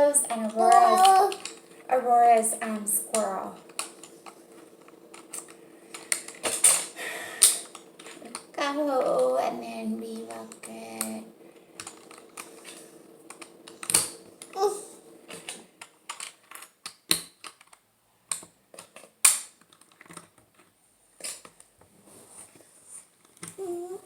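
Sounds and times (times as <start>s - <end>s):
plastic bricks clicking and clattering: 15.3s - 21.6s.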